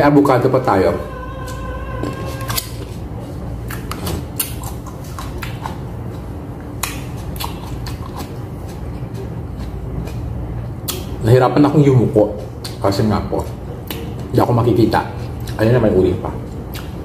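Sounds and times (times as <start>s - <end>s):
low steady hum: 0.0s - 17.0s
wet mouth clicks and smacks: 3.7s - 6.2s, 6.8s - 10.2s, 10.8s - 11.1s, 12.6s - 12.8s, 16.7s - 17.0s
person chewing a tomato: 3.7s - 11.2s, 15.2s - 15.6s, 16.4s - 17.0s.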